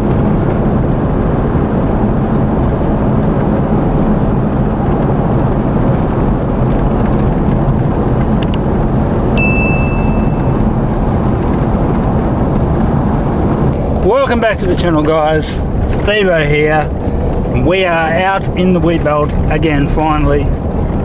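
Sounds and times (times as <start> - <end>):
vehicle road and engine noise: 0.0 - 21.0
short high electronic beep: 9.4 - 10.8.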